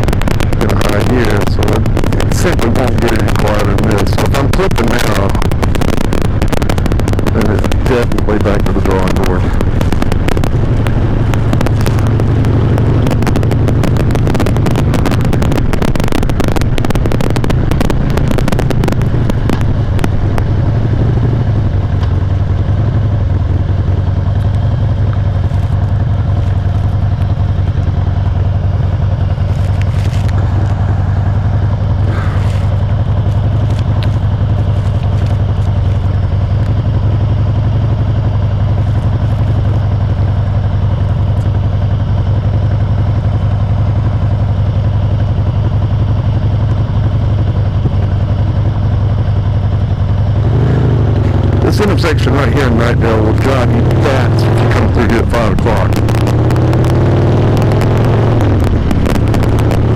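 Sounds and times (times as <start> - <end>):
crackling distortion: 0.0 - 59.9
motorcycle engine running: 0.0 - 59.9.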